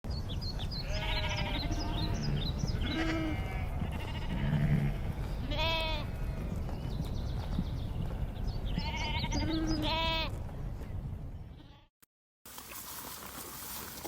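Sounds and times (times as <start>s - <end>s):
sheep bleating: 0.8s - 6.4s, 8.8s - 10.3s.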